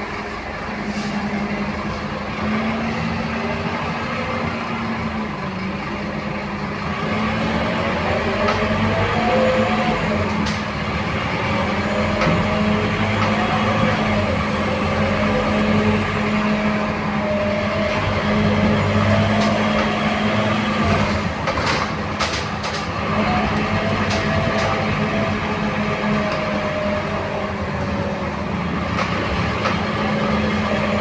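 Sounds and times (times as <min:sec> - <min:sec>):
bus diesel engine droning: 0:00.0 - 0:31.0.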